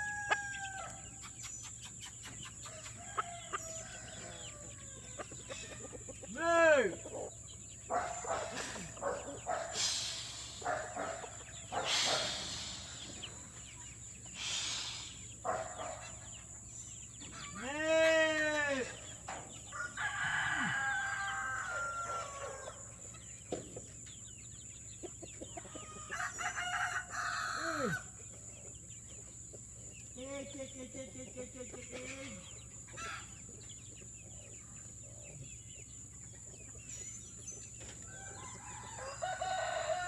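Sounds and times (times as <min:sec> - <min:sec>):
rooster crowing: 0:00.0 - 0:01.2, 0:02.7 - 0:05.2, 0:19.7 - 0:22.9, 0:25.8 - 0:28.1, 0:38.0 - 0:40.0
chickens clucking: 0:00.0 - 0:40.0.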